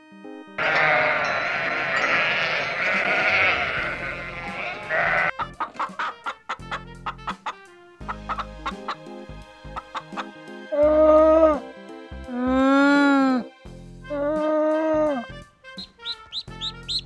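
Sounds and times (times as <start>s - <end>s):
soft background music: 0.0s - 17.0s
sheep bleating: 0.6s - 5.4s
hens clucking: 0.6s - 9.1s, 9.7s - 10.4s.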